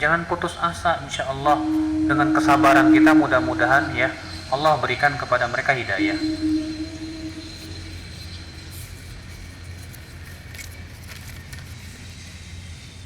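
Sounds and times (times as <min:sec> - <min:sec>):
low background hum: 0:00.0 - 0:10.0
faint high whine: 0:00.8 - 0:09.2.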